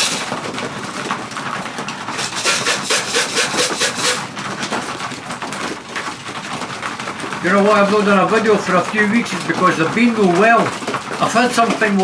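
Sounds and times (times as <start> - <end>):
rhythmic wing strokes: 0.0 - 0.4, 2.1 - 4.3
pigeons rustling: 0.0 - 12.0.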